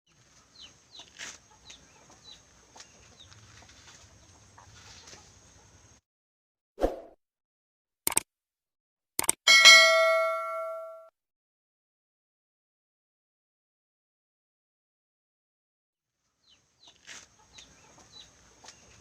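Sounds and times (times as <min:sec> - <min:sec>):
sharp click: 0:08.1 - 0:08.3, 0:09.2 - 0:09.4.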